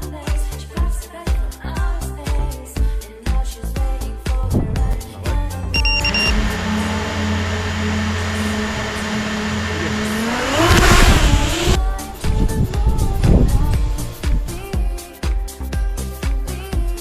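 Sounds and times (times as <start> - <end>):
wind noise: 4.4 - 5.0, 10.3 - 14.8
drone motors humming: 4.4 - 15.0.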